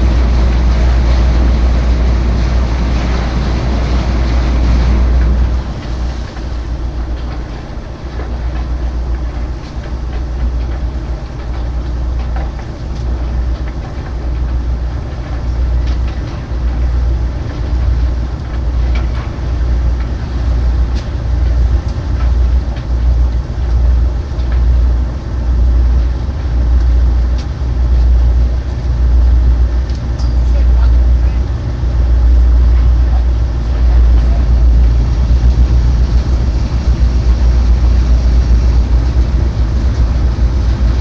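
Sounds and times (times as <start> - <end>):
ship machinery rumbling: 0.0 - 41.0
light metal clanks: 30.2 - 30.7.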